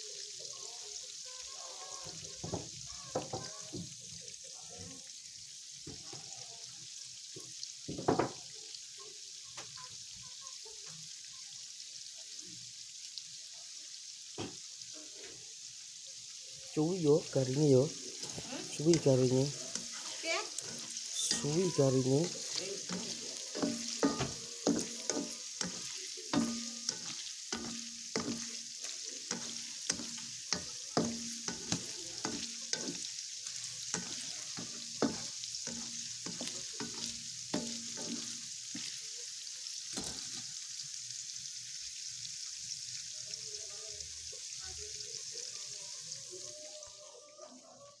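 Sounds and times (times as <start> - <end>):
tofu sizzling in oil: 0.0 - 48.0
spatula scraping and knocking pan: 18.1 - 33.1, 33.7 - 39.0, 39.9 - 40.5.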